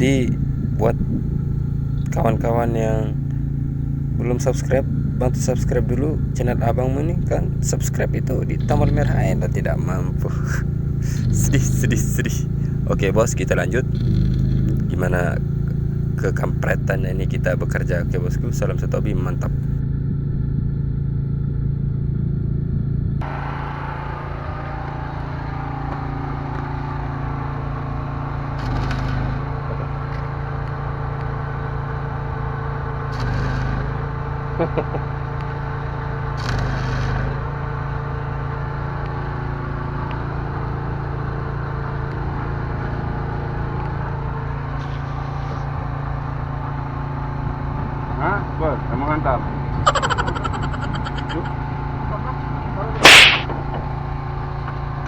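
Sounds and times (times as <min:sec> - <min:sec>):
engine idling: 0:00.0 - 0:55.0
short bursts of louder noise: 0:53.0 - 0:53.5.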